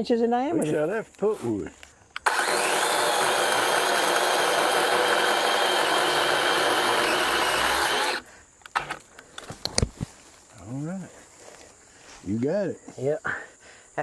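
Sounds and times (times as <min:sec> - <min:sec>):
power tool running: 0:02.2 - 0:09.0.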